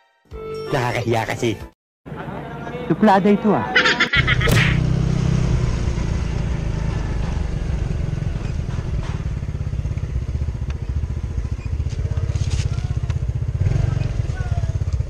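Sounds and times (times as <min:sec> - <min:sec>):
scooter engine running: 0:04.2 - 0:15.0.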